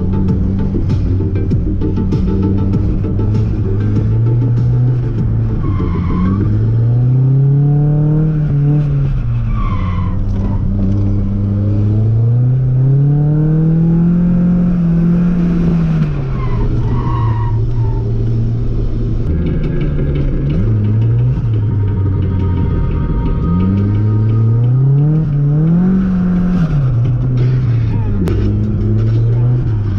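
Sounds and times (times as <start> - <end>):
tyres skidding and squealing: 0.0 - 29.9
car engine revving hard: 2.6 - 9.1, 10.3 - 16.2, 23.5 - 29.9.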